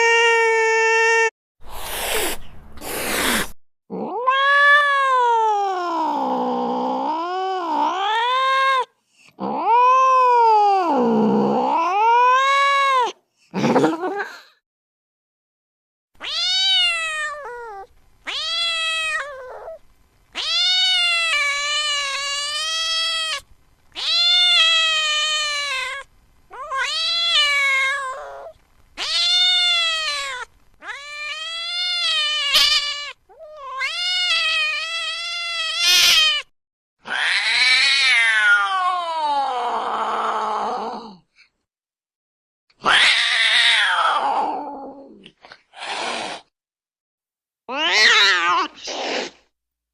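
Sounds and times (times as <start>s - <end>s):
cat yowling: 3.9s - 13.2s, 16.2s - 23.4s, 24.0s - 41.2s, 42.8s - 45.2s, 47.7s - 49.3s.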